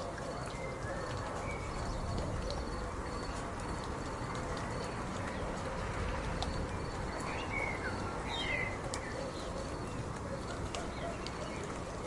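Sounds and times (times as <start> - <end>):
bird chirping: 6.4 - 11.8.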